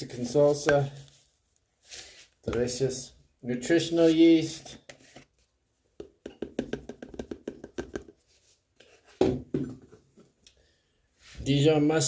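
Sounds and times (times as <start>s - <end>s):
container taps and clicks: 6.0s - 8.2s.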